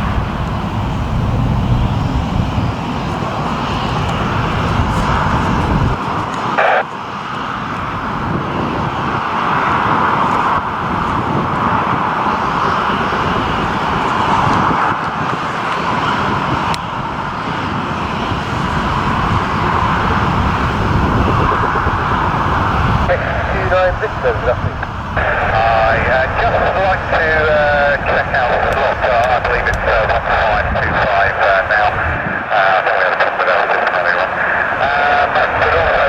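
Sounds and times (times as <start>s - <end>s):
jet engines running: 0.0s - 36.0s.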